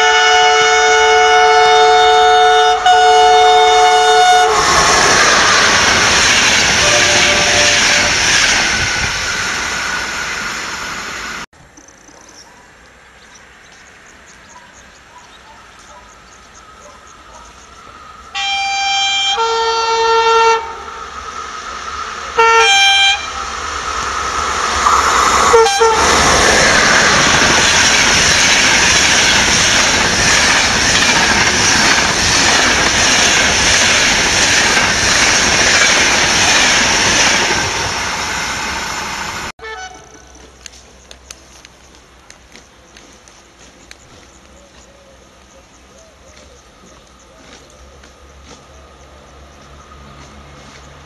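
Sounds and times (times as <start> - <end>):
train horn: 0.0 - 5.2, 6.6 - 8.4, 18.2 - 21.1, 22.2 - 23.6, 24.8 - 26.4, 39.6 - 40.4
train passing with rushing noise: 0.0 - 12.0, 12.6 - 51.0.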